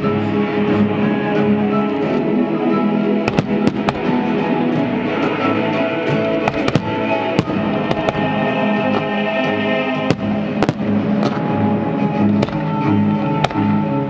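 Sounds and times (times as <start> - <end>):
loud music with sustained tones: 0.0 - 14.0
fireworks bangs: 3.2 - 4.3, 6.4 - 9.2, 10.0 - 13.7.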